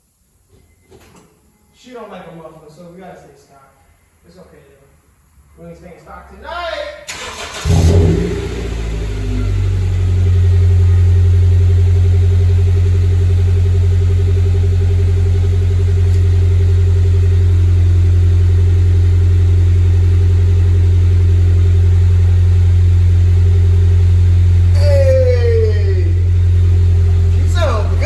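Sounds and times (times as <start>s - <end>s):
car engine idling: 7.1s - 28.0s.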